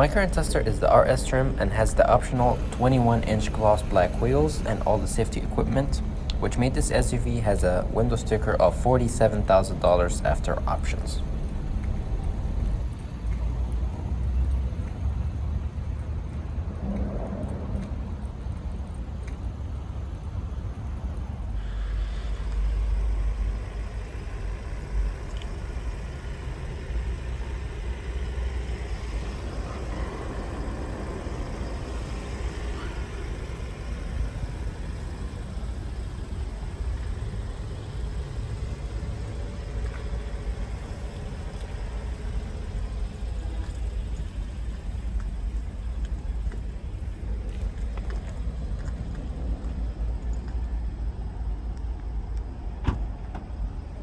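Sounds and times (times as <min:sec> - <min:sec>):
car engine starting and idling: 0:00.0 - 0:54.0.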